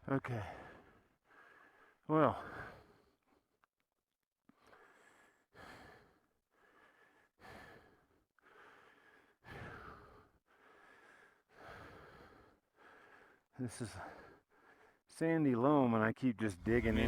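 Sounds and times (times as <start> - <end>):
man breathing hard: 0.4 - 3.4, 4.5 - 15.1.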